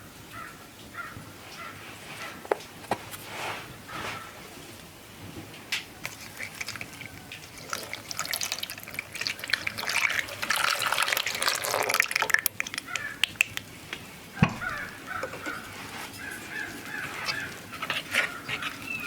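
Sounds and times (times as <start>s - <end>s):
water pouring and splashing: 5.8s - 19.0s.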